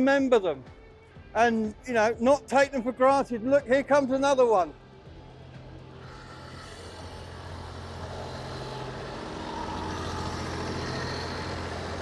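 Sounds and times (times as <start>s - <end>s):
tractor engine running: 0.7s - 12.0s.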